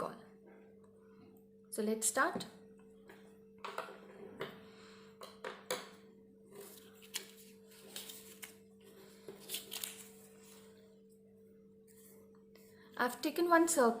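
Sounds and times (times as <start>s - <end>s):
steady low hum: 0.0s - 14.0s
paper rustling: 6.5s - 10.7s.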